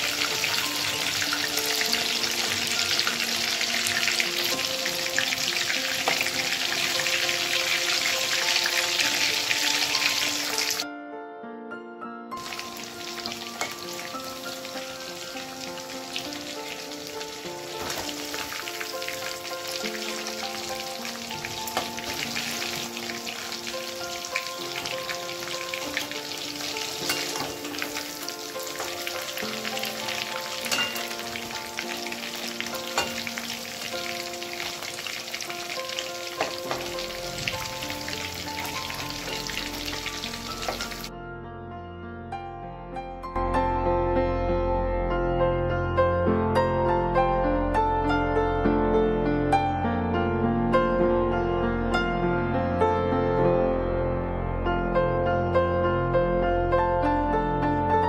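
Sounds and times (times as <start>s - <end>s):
deep-frying sizzling crackle: 0.0s - 10.8s, 12.4s - 41.1s
soft background music: 0.0s - 58.0s.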